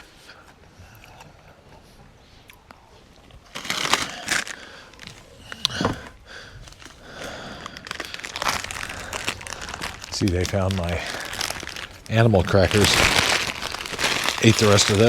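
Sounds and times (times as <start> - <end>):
plastic bag crinkling: 3.5 - 5.7, 6.6 - 15.0.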